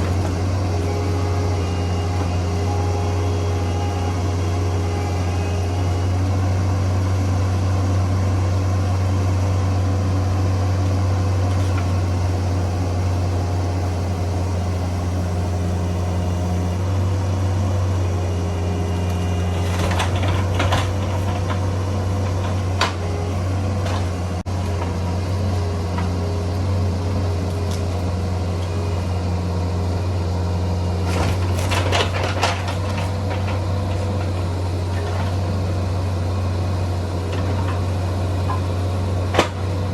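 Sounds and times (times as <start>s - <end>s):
excavator diesel engine droning: 0.0s - 39.9s
sharp knocks and cracks: 39.3s - 39.7s.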